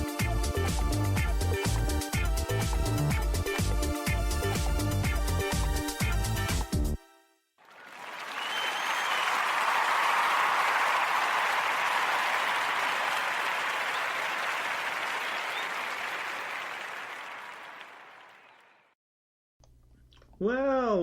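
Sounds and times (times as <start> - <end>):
crowd applause: 7.6 - 18.9.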